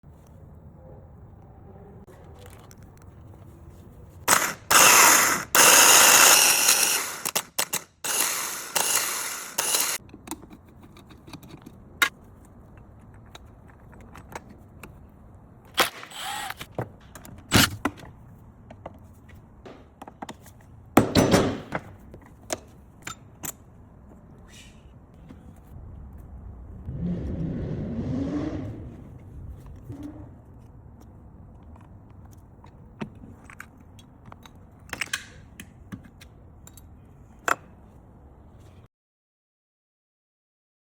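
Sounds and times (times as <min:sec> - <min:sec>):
loud tool bursts: 0:04.3 - 0:10.0, 0:15.8 - 0:16.6.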